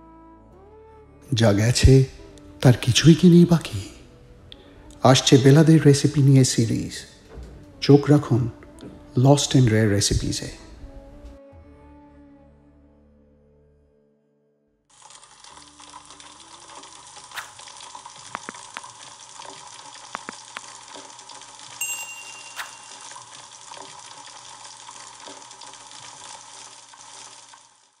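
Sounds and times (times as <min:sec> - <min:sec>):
food sizzling in hot oil: 0:14.9 - 0:28.0
bright ding: 0:21.8 - 0:23.2.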